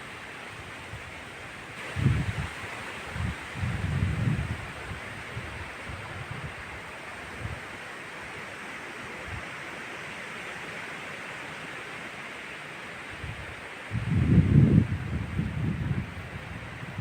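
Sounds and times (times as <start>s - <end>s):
wind rushing through forest: 0.0s - 17.0s
wind gust buffeting microphone: 1.8s - 6.7s, 13.2s - 17.0s.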